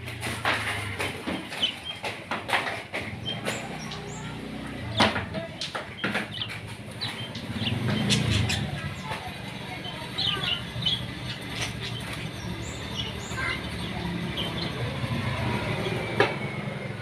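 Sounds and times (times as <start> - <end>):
parakeet chirping: 3.2 - 15.4.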